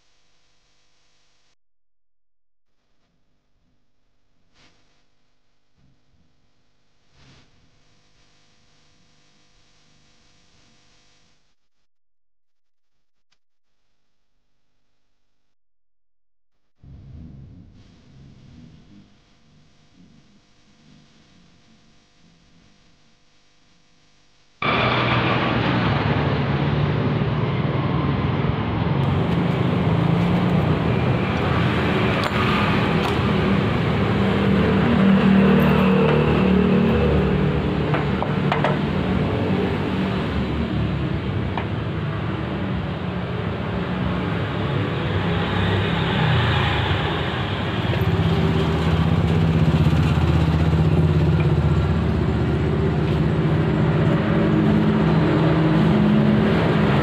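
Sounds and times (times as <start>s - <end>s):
engine running: 24.6s - 45.3s, 45.9s - 57.0s.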